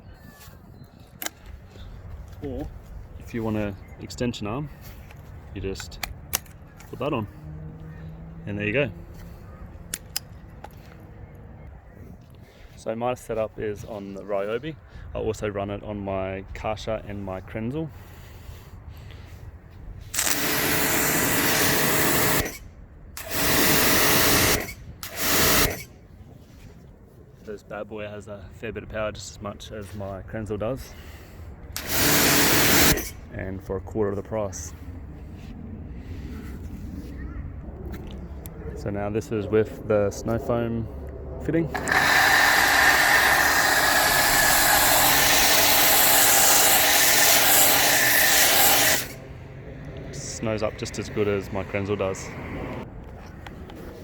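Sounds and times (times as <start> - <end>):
pressure washer motor hum: 20.2 - 22.6, 23.2 - 25.8, 31.8 - 33.1, 41.7 - 49.2
pressure washer water jet hissing: 20.3 - 22.6, 23.2 - 25.8, 31.8 - 33.1, 41.8 - 49.2.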